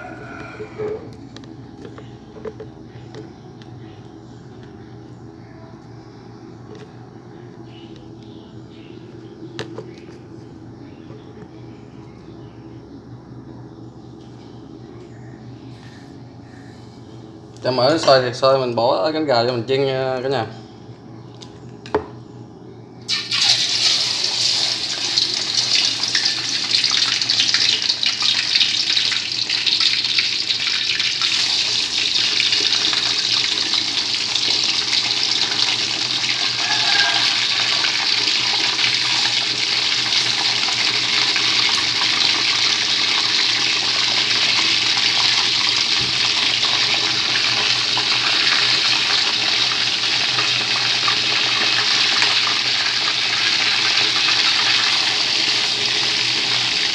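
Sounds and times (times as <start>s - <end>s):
chicken wings sizzling in oil: 23.1s - 56.9s.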